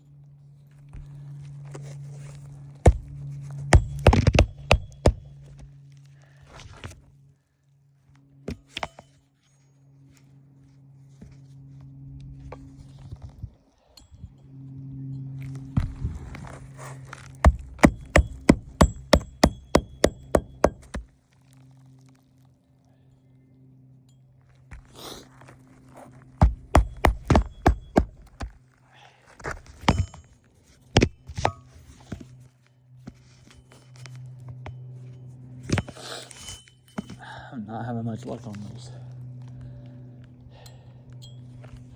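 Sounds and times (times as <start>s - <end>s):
steady low hum: 0.0s - 22.0s, 22.8s - 28.8s, 29.4s - 41.9s
hammer blows on shingle roof: 2.9s - 5.5s, 17.4s - 21.1s, 26.4s - 28.5s
sharp knocks on roof: 3.8s - 5.3s, 26.4s - 28.2s.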